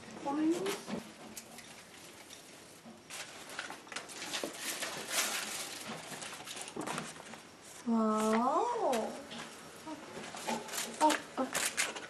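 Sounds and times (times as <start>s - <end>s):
ornaments rustling and clicking: 0.0s - 12.0s.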